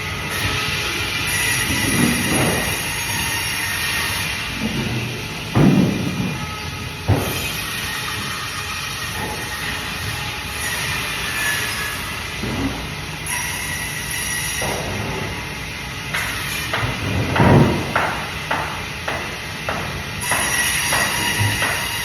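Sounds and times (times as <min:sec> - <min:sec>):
heavy thump: 0:05.6 - 0:06.4
sharp knocks: 0:16.1 - 0:22.0
bandsaw cutting fish: 0:20.2 - 0:22.0.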